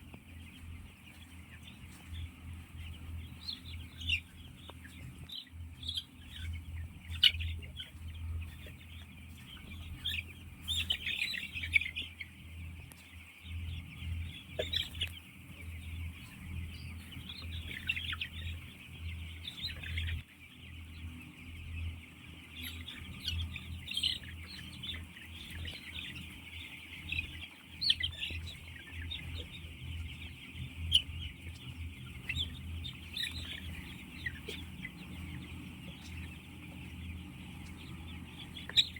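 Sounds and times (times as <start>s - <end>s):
chickens calling: 0.0s - 38.9s
steady low hum: 0.0s - 38.9s.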